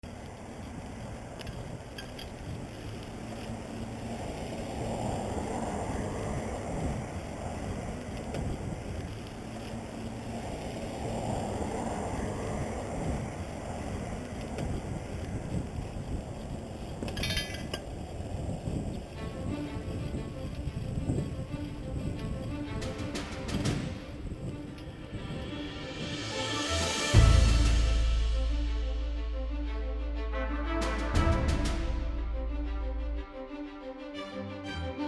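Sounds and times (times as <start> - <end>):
wind rushing over microphone: 0.0 - 30.4.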